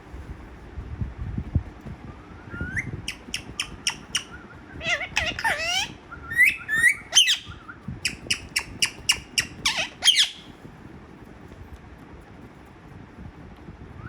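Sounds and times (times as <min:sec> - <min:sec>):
parrot squawking: 0:02.7 - 0:10.5.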